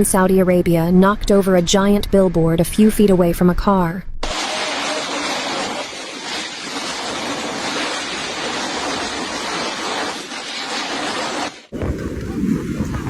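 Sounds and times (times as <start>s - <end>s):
heavy rain with strong wind: 4.2s - 13.0s.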